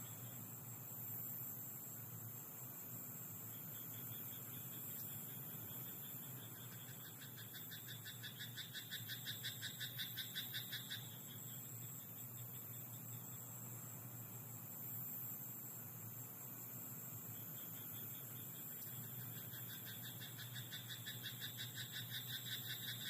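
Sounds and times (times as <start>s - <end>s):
high-pitched night hiss: 0.0s - 23.0s
frog croaking rapidly: 7.0s - 11.2s.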